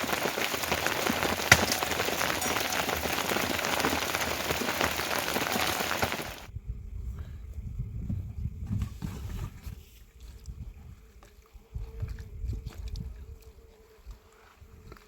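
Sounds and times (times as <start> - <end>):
rain falling: 0.0 - 6.5.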